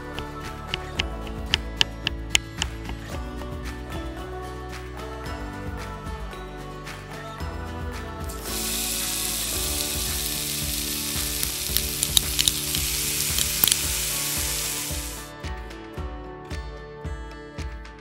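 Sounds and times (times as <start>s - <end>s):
oil popping and crackling: 0.2s - 3.1s, 8.4s - 15.3s
garlic sizzling in hot oil: 8.4s - 15.3s.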